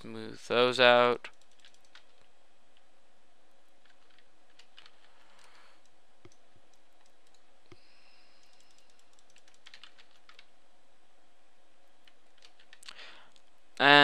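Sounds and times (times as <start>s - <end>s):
steady background hiss: 0.0s - 14.0s
keyboard and mouse clicks: 1.3s - 2.2s, 3.7s - 7.8s, 8.4s - 10.5s.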